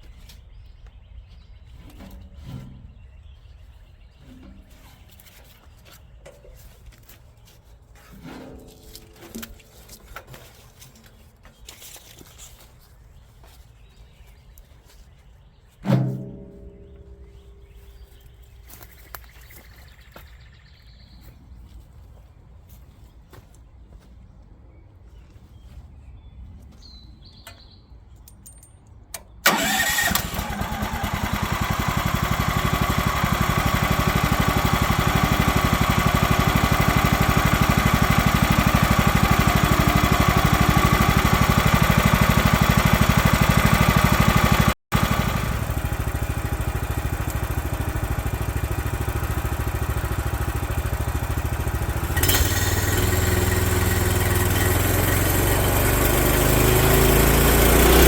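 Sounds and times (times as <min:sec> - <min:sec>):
deeper steady hum: 0:15.9 - 0:19.6
small gasoline engine running: 0:29.5 - 0:58.0.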